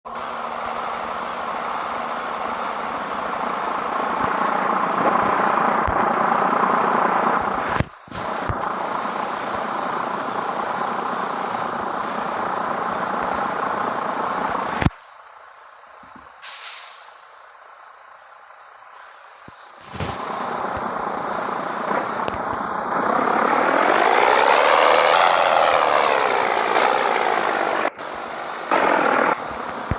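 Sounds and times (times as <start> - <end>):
truck engine and exhaust running: 0.1 - 29.9
short high air hiss: 16.4 - 17.6, 19.0 - 20.2.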